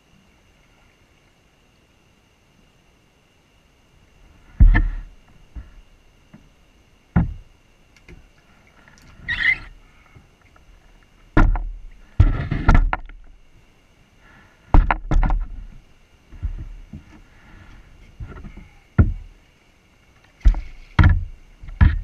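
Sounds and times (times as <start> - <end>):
scraping rustle: 4.2 - 6.0, 8.4 - 13.4, 14.7 - 19.5, 20.1 - 22.0
knocks against kayak hull: 4.6 - 6.5, 7.1 - 7.5, 11.3 - 13.3, 14.7 - 17.2, 18.2 - 19.3, 20.4 - 22.0.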